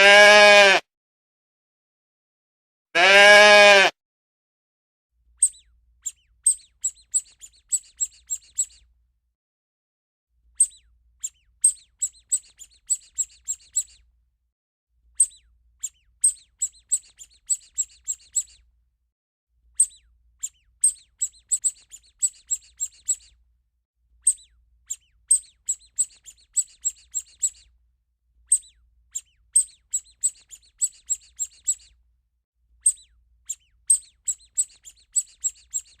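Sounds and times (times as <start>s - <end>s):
small bird chirping: 5.3s - 9.0s, 10.4s - 14.1s, 15.1s - 18.8s, 19.7s - 23.5s, 24.2s - 27.8s, 28.4s - 32.1s, 32.7s - 36.0s.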